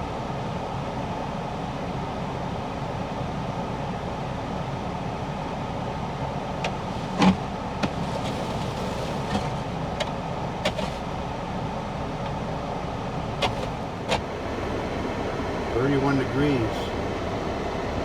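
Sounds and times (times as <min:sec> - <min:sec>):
car cabin hum and rush: 0:05.6 - 0:18.0
heater fan blowing: 0:12.2 - 0:18.0.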